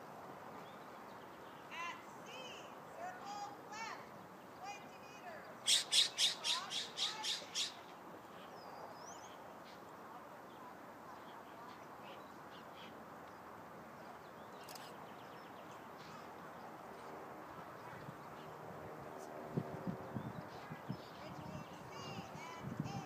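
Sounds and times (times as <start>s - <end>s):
outdoor background hiss: 0.0s - 23.0s
bird harsh call: 5.6s - 7.9s.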